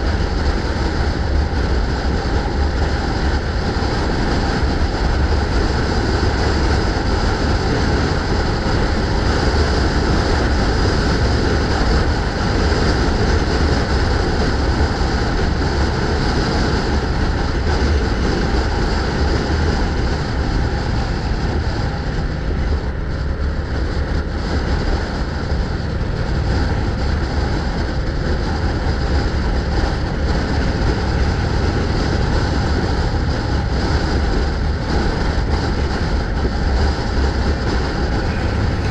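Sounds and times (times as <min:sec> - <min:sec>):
road rumble from moving bike: 0:00.0 - 0:38.9
wind noise on microphone: 0:00.0 - 0:38.9.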